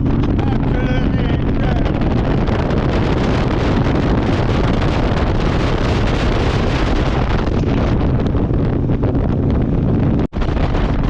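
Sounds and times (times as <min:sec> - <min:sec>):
motorcycle engine running: 0:00.0 - 0:11.0
wind rushing over microphone: 0:00.0 - 0:11.0.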